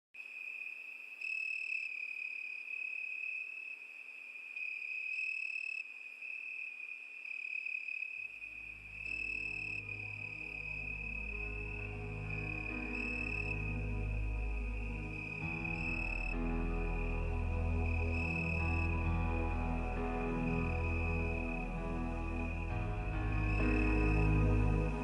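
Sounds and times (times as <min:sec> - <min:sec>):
crickets chirping: 0:00.2 - 0:25.0
soft music with low notes: 0:08.8 - 0:25.0.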